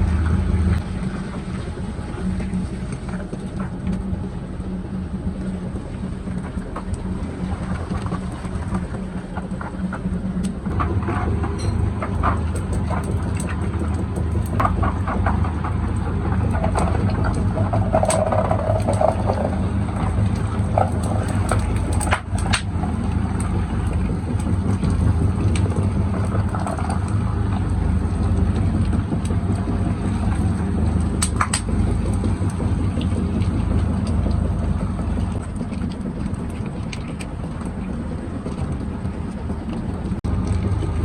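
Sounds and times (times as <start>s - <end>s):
factory machinery humming: 0.0s - 41.0s
clicks and clanks: 9.4s - 27.7s, 28.8s - 40.6s.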